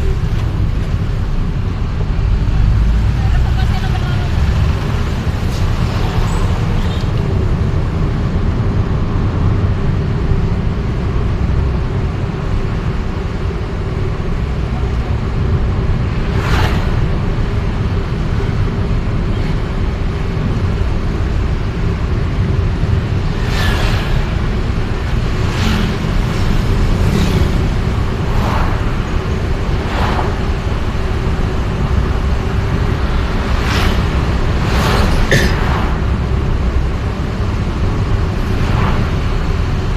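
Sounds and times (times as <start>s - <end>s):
vehicle rumble in traffic: 0.0s - 39.9s.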